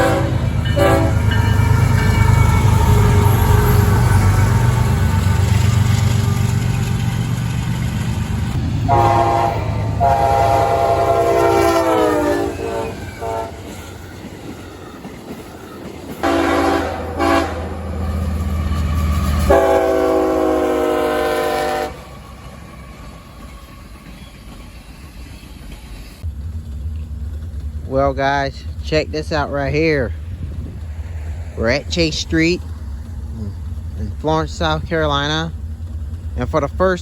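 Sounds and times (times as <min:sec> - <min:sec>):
locomotive air horn blasts: 0:00.0 - 0:01.9, 0:08.8 - 0:13.8, 0:16.2 - 0:18.0, 0:19.4 - 0:22.1
locomotive engine rumble: 0:00.0 - 0:37.0.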